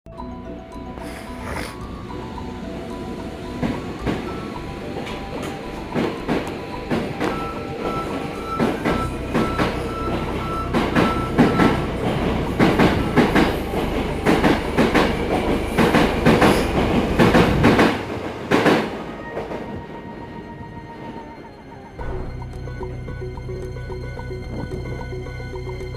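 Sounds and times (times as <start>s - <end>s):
train wheels clacking over rail joints: 5.0s - 19.0s.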